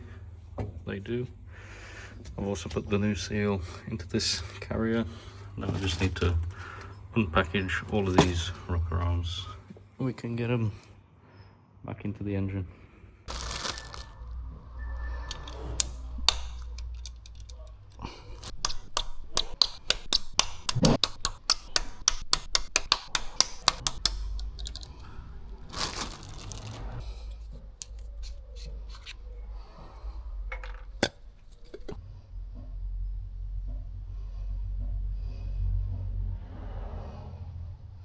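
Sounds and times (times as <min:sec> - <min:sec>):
plastic packaging tearing: 0:13.3 - 0:27.0
plastic packaging clicks and crackles: 0:13.3 - 0:29.1.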